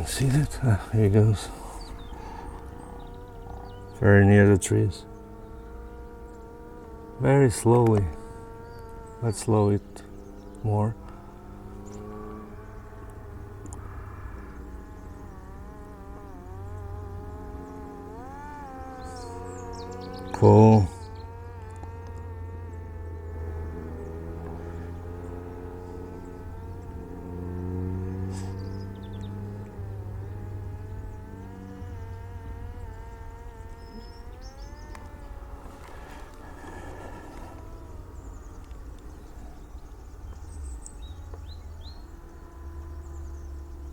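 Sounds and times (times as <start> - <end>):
faint bird chirps: 0.0 - 6.5, 7.2 - 43.9
drone motor and propeller buzzing: 0.0 - 43.9.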